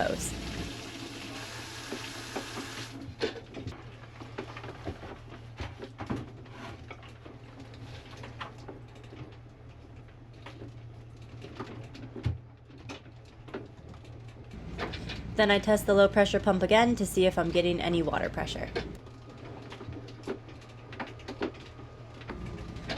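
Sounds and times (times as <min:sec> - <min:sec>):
boat engine humming: 0:14.6 - 0:19.0.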